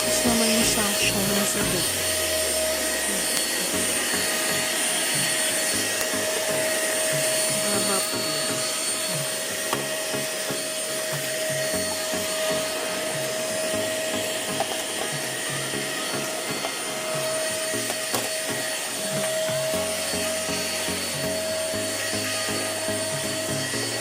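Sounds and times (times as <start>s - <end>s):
handheld vacuum cleaner running: 0.0s - 24.0s.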